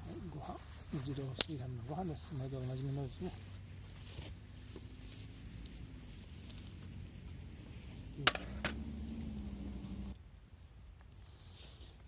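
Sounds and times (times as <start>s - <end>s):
insect high-pitched trill: 0.0s - 8.2s
low steady hum: 0.0s - 10.2s.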